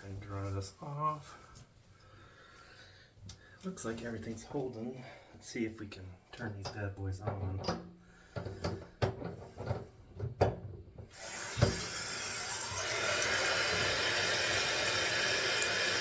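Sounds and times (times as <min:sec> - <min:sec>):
water rushing from tub spout: 0:11.1 - 0:16.0.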